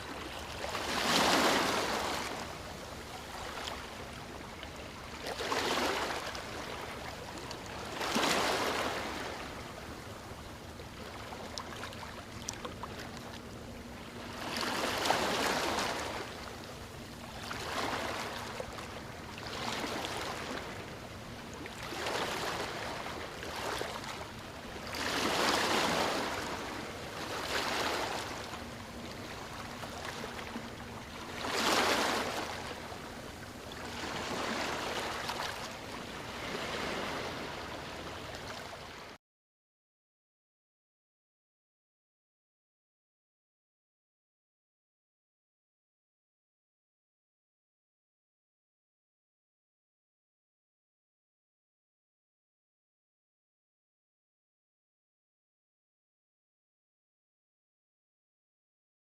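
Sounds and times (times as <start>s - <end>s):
small waves washing in: 0.0s - 39.2s.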